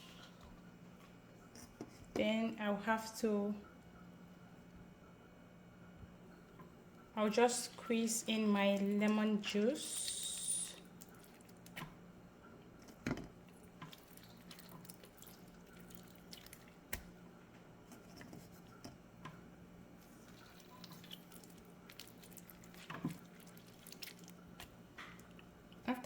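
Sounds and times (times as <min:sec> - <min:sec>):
juice dripping and squelching: 0:06.5 - 0:26.0.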